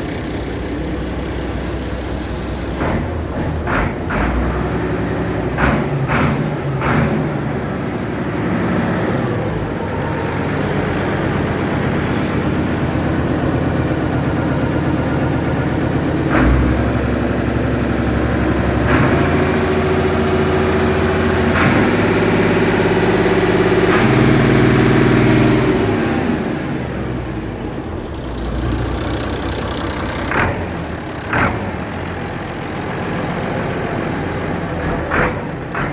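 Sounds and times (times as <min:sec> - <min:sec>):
tractor engine running: 0:00.0 - 0:35.9
short clunks: 0:05.5 - 0:07.4.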